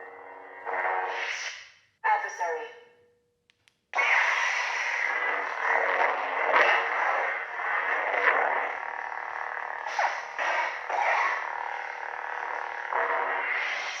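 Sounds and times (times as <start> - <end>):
grainy lightsaber hum: 4.0 - 14.0.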